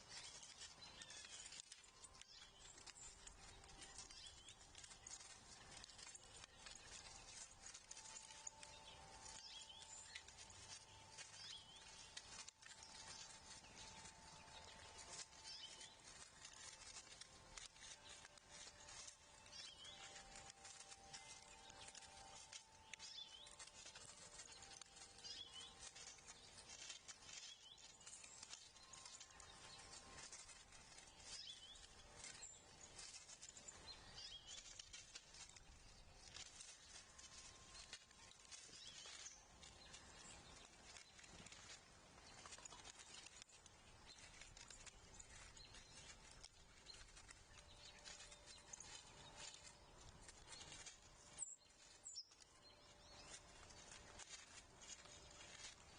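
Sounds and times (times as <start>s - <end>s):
soft clicks and rustles: 0.0s - 55.9s
high bird chirps: 0.1s - 35.5s.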